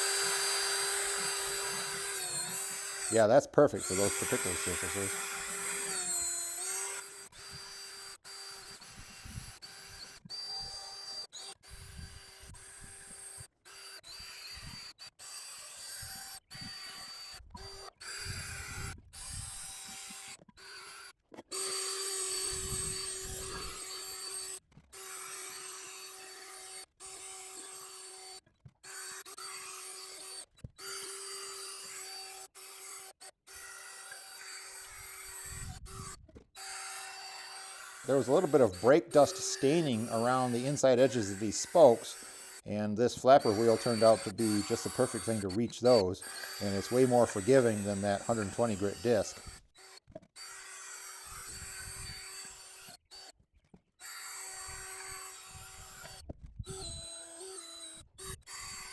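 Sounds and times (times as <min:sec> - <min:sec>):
flap wheel grinding on metal: 0:00.0 - 0:26.1, 0:34.4 - 0:53.3
power drill motor whine: 0:00.0 - 0:53.4, 0:54.0 - 0:58.9.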